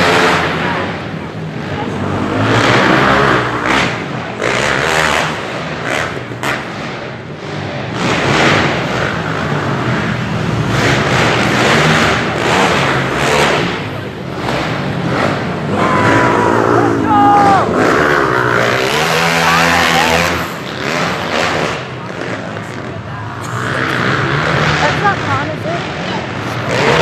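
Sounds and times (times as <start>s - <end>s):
dirt bike engines revving: 0.0s - 27.0s.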